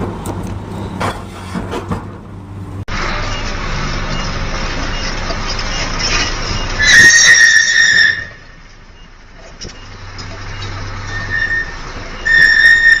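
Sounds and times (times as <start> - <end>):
high-pitched squeal: 2.9 - 8.6, 11.0 - 13.0.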